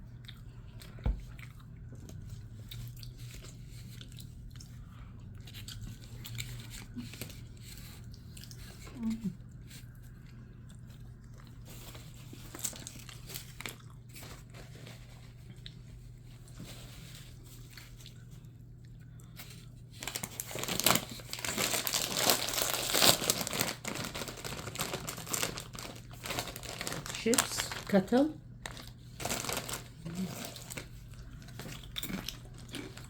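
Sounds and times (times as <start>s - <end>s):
foil chip bag crinkling: 11.4s - 18.4s, 19.2s - 33.0s.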